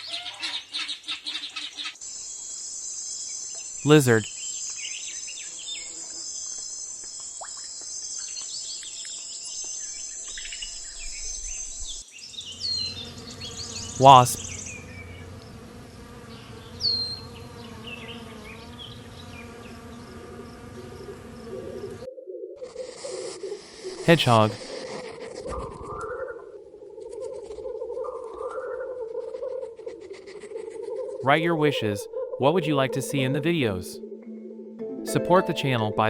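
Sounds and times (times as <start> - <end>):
insects chirring: 2.0 - 22.1
wasp buzzing: 12.3 - 22.0.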